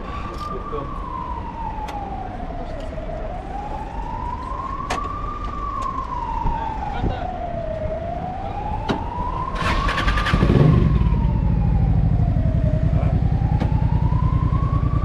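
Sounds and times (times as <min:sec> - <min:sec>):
siren wailing: 0:00.0 - 0:15.0
motorcycle engine starting and idling: 0:09.5 - 0:15.0.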